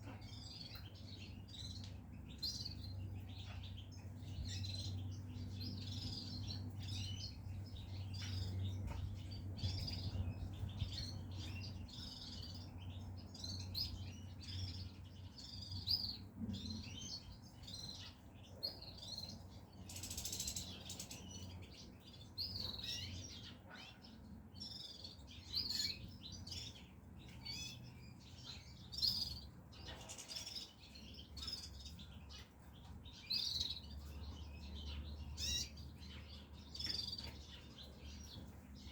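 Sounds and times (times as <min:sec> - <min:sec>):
finches chirping and twittering: 0:00.0 - 0:38.9.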